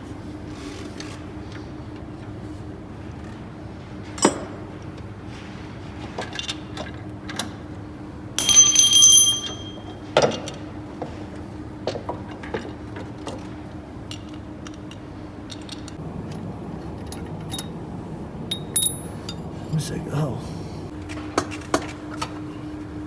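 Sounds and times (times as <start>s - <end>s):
metal piece ringing: 8.4s - 10.0s, 18.5s - 19.4s
metal tools clinking: 8.4s - 10.6s, 18.5s - 19.5s.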